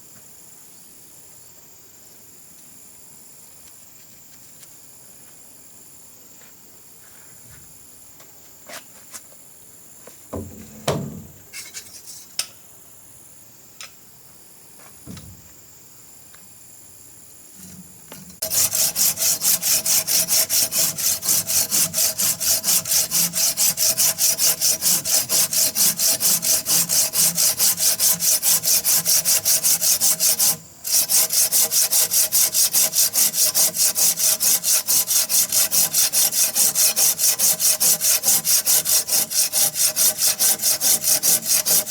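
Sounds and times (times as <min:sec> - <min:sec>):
knocks: 0:10.3 - 0:11.4
hand saw cutting wood: 0:17.6 - 0:41.9.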